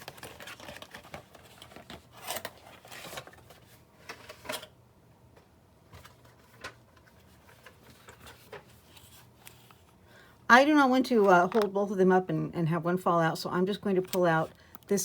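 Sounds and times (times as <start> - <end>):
packaging rustling: 0.0 - 4.7.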